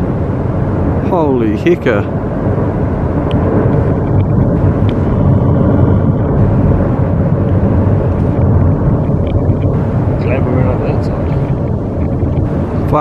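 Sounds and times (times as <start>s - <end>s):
avalanche deep rumble: 0.0s - 13.0s.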